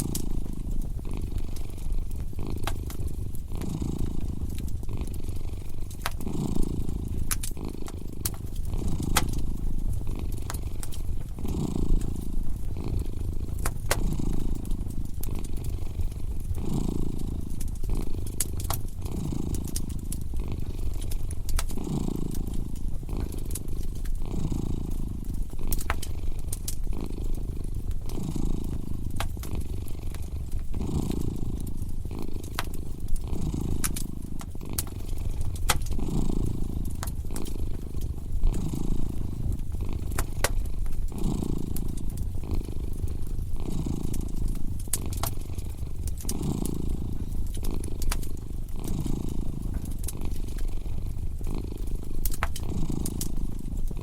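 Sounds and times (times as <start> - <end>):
cat purring: 0.0 - 54.0
wood fire crackling and popping: 0.0 - 54.0.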